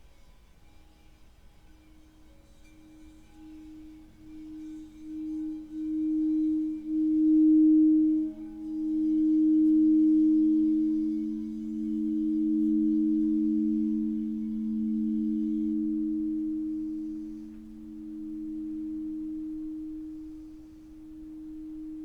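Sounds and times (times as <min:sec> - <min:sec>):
singing bowl low tones: 0:00.6 - 0:22.0.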